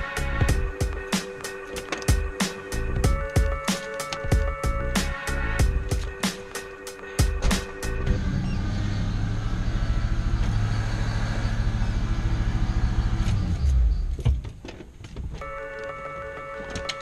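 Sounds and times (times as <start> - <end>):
engine running with rough hum: 7.2 - 14.2.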